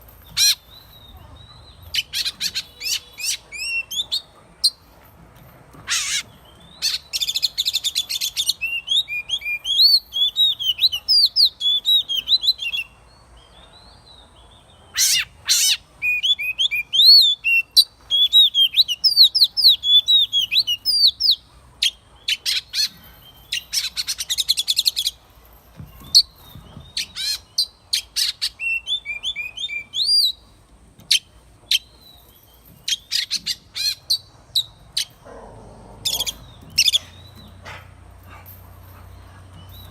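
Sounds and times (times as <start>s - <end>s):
bird singing whistled notes: 6.5s - 13.0s, 14.9s - 21.4s, 26.0s - 30.4s.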